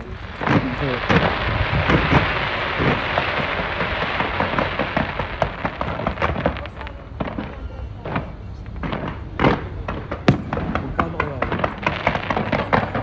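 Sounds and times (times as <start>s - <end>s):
fireworks crackling: 0.0s - 13.0s
low fireworks booms: 0.0s - 13.0s.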